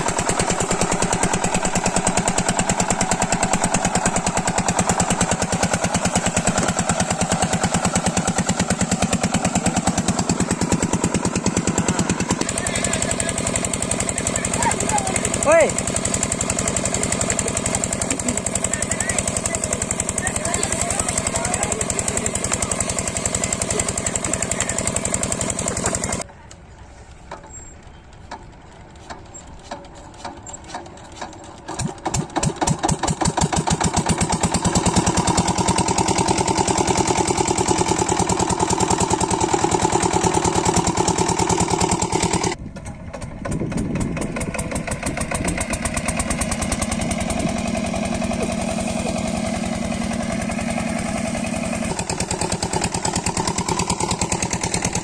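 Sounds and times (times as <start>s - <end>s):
diesel water pump engine running: 0.0s - 55.0s.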